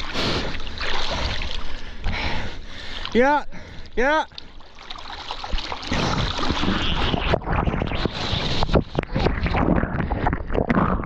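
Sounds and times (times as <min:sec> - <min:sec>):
water rushing and splashing: 0:04.4 - 0:09.6.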